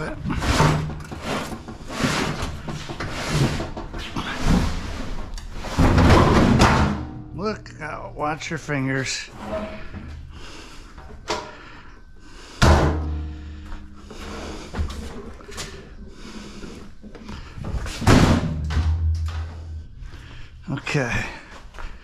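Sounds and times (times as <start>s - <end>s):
metal clanks and thuds: 0.0s - 7.4s, 12.6s - 15.8s, 17.1s - 20.2s
loud metal bangs with ringing hum: 12.6s - 13.4s.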